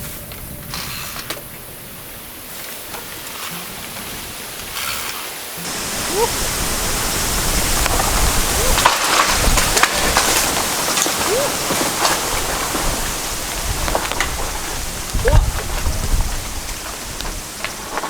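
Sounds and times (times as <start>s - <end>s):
wind rushing through bamboo: 0.0s - 18.0s
leaves thrashing: 2.2s - 18.0s
bamboo creaking squeaks and clicks: 7.9s - 18.0s.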